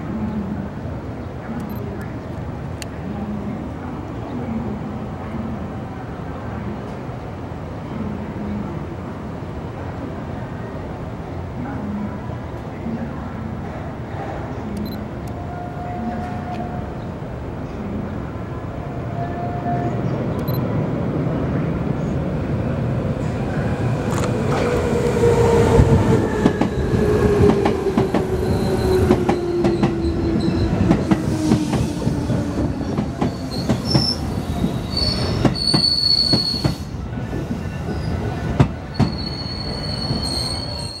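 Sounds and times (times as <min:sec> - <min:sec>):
high brake squealing: 0:34.8 - 0:36.9, 0:39.0 - 0:41.0.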